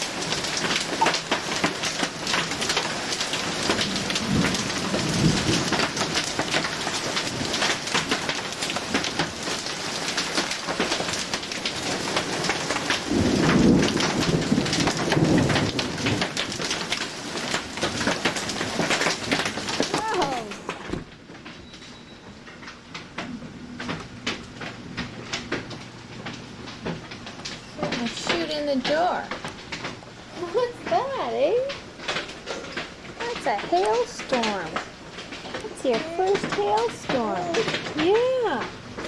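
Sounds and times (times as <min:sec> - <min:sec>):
thunder rumbling: 0:00.0 - 0:07.8, 0:11.9 - 0:21.1
heavy rain pounding: 0:00.0 - 0:21.5, 0:22.4 - 0:39.0.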